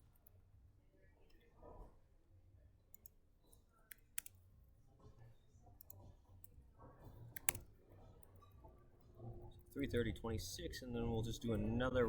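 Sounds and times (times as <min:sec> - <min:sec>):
faint low room hum: 0:00.0 - 0:12.0
computer mouse clicks: 0:02.9 - 0:04.4, 0:05.8 - 0:06.6, 0:07.2 - 0:08.4.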